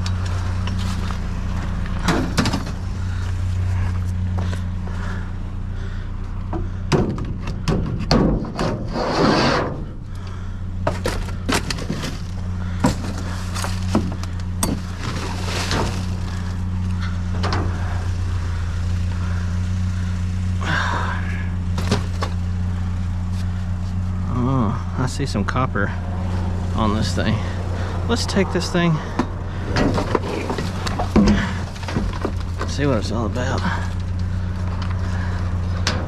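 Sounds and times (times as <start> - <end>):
junk knocking and clattering: 0.0 - 20.2, 20.8 - 23.2, 26.0 - 36.0
engine idling hum: 0.0 - 36.0
scraping rustles: 6.2 - 20.5, 28.8 - 36.0.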